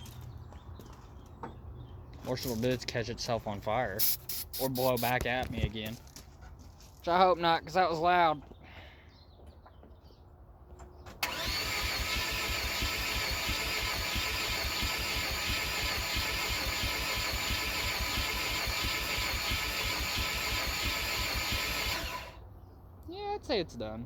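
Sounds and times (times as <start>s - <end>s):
engine cranking with starter motor: 11.1s - 22.4s.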